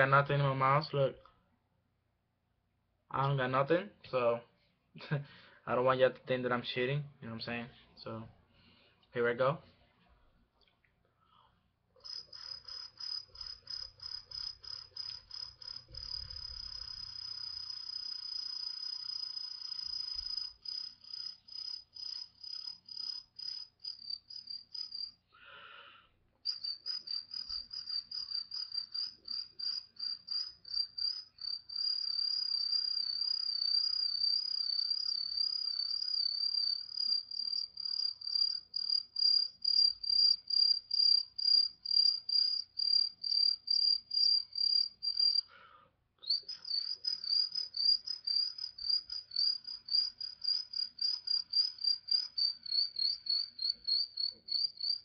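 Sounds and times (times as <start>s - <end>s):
person imitating cricket chirps: 12.0s - 25.1s, 26.5s - 45.5s, 46.2s - 55.0s.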